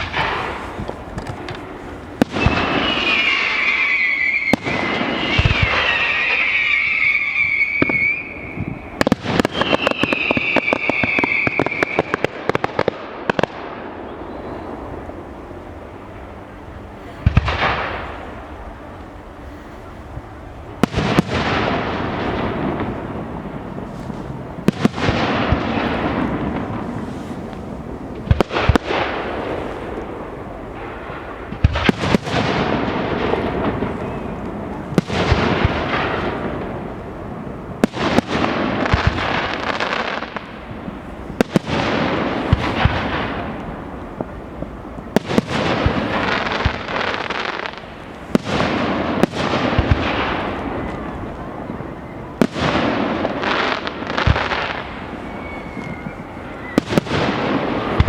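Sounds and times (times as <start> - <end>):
fireworks hissing: 0.0 - 12.6
fireworks bangs: 0.0 - 58.0.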